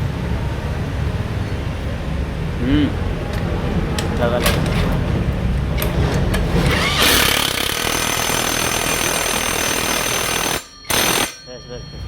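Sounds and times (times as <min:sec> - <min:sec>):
impact wrench hammering: 0:05.8 - 0:11.5.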